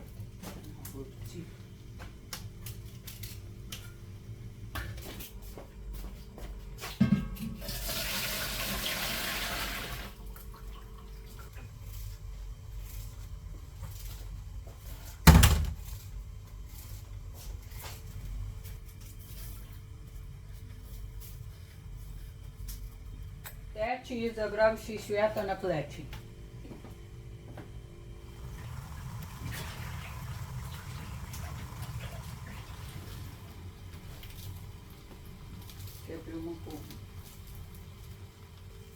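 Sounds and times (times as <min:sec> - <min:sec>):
water pouring: 0:07.6 - 0:11.6, 0:28.3 - 0:33.7.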